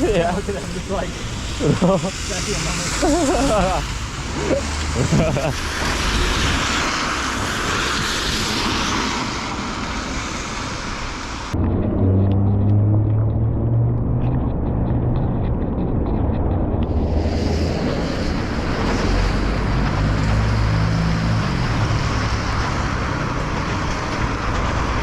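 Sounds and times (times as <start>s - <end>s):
passing traffic rumble: 0.0s - 25.0s
engine hum: 11.5s - 25.0s.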